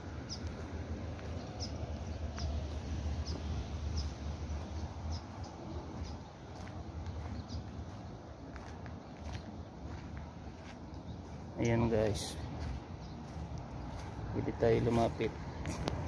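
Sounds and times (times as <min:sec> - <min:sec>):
steady low rumble: 0:00.0 - 0:16.0
small bird chirping: 0:00.2 - 0:11.5.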